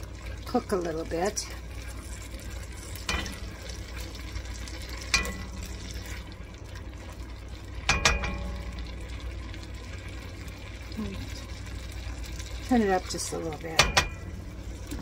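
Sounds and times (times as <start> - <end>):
vegetables sizzling in butter: 0.0 - 15.0
spatula knocking against pan: 7.9 - 8.6, 13.8 - 14.2.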